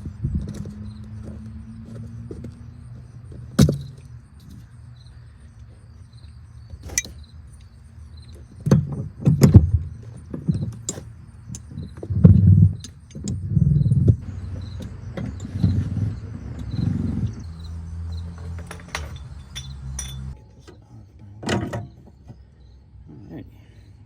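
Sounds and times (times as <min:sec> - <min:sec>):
heavy clunks and rattles: 0:00.0 - 0:04.7, 0:08.5 - 0:20.4.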